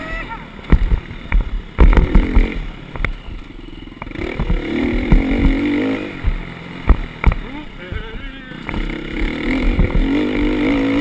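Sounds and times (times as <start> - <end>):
dirt bike engine revving: 0.0 - 11.0
sudden thumps and clatter: 0.7 - 3.4, 4.2 - 10.2.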